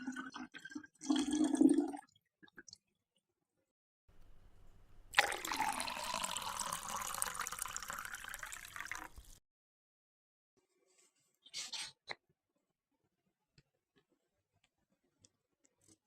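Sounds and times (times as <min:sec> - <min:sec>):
running water: 0:05.1 - 0:09.4.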